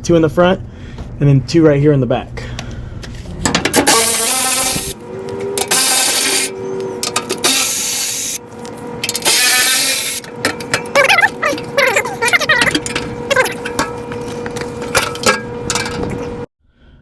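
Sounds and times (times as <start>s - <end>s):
cordless power tool whirring: 3.7s - 10.4s.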